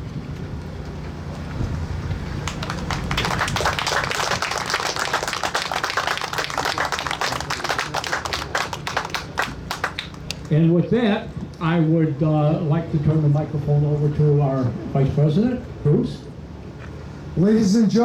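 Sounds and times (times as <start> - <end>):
crowd applauding: 2.1 - 10.6.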